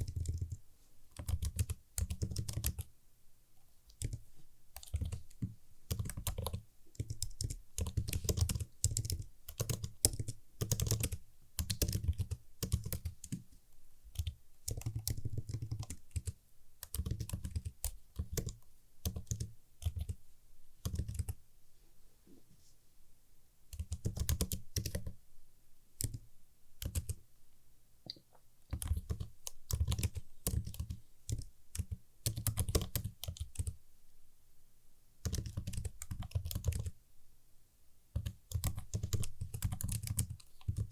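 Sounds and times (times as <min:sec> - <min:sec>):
computer keyboard typing: 0:00.0 - 0:02.9, 0:03.9 - 0:13.5, 0:14.1 - 0:20.2, 0:20.8 - 0:21.4, 0:23.7 - 0:25.2, 0:26.0 - 0:26.2, 0:26.8 - 0:27.2, 0:28.7 - 0:33.8, 0:35.2 - 0:37.0, 0:38.2 - 0:40.9.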